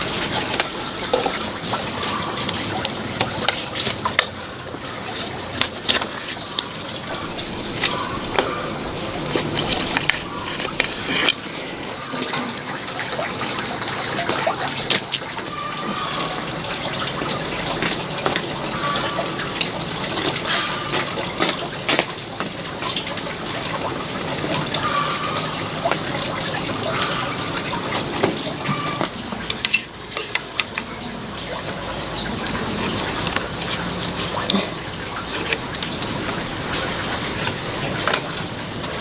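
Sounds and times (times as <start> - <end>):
water running from tap: 0.0 - 39.0.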